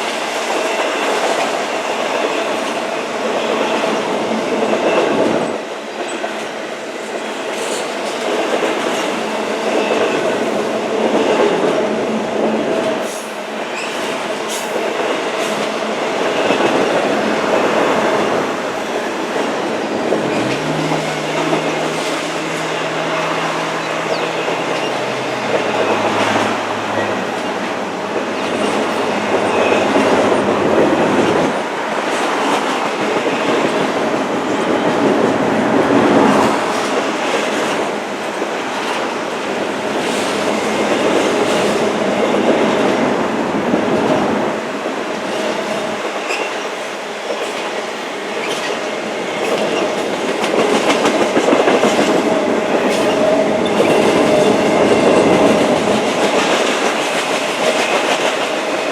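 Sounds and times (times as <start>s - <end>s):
low locomotive engine hum: 8.3s - 46.3s, 48.3s - 58.9s
train wheels clacking on rail joints: 45.2s - 58.9s.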